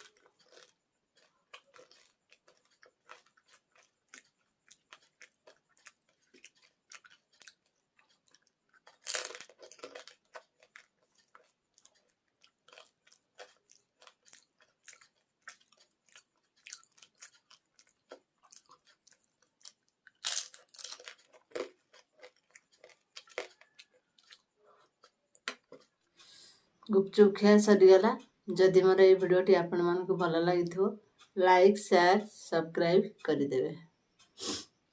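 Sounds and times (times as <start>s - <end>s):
crisp shells crunching: 0.0s - 25.9s
wet mouth clicks while chewing: 0.0s - 26.9s.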